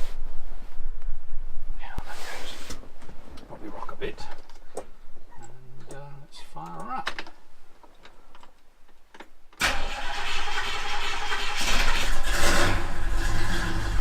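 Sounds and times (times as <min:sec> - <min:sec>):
car engine starting and running: 0:09.6 - 0:14.0.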